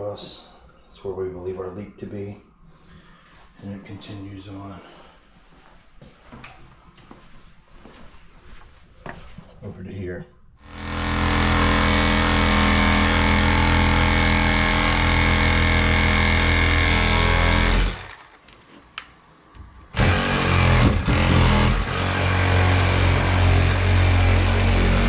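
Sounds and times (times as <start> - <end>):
power tool running: 10.6 - 18.4, 20.0 - 25.0.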